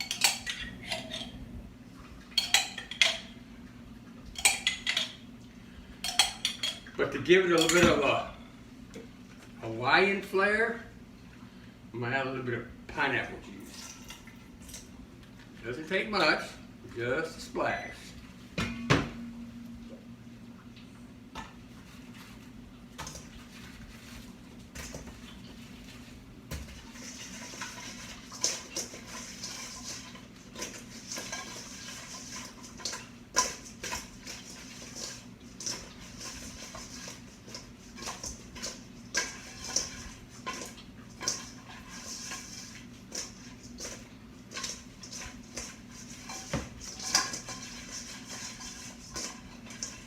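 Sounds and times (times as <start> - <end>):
utensils and dishes clinking: 0.0 - 1.4, 2.3 - 3.4, 4.3 - 5.2, 6.0 - 8.2, 27.0 - 50.0.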